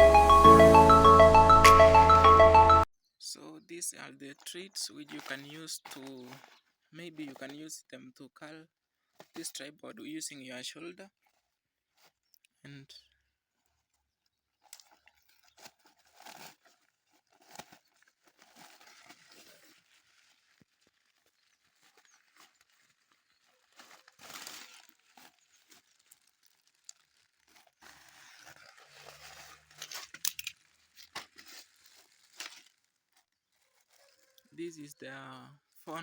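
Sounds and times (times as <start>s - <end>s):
packaging rustling and crinkling: 5.0s - 7.4s, 11.2s - 12.3s, 13.5s - 34.4s.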